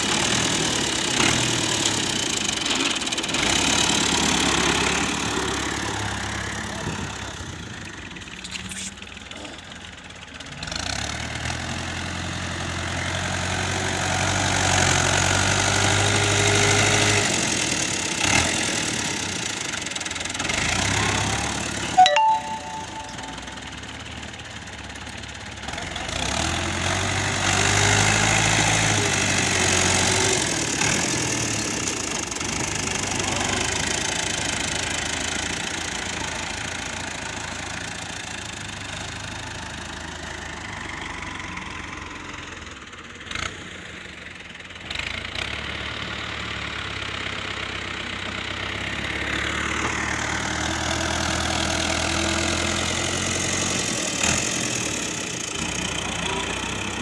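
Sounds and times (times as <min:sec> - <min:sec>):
tractor diesel engine running: 0:00.0 - 0:14.3.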